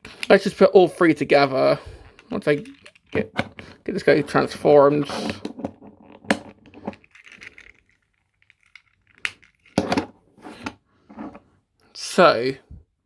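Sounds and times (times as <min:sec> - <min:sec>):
plastic rubbing and rattling: 0:00.5 - 0:11.5
plastic toy parts clicking: 0:02.2 - 0:04.0, 0:06.1 - 0:09.9.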